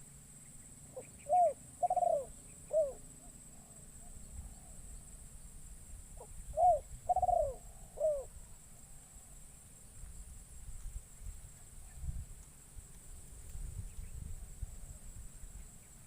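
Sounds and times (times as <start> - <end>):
dove cooing: 0.9 - 4.8, 6.2 - 8.3.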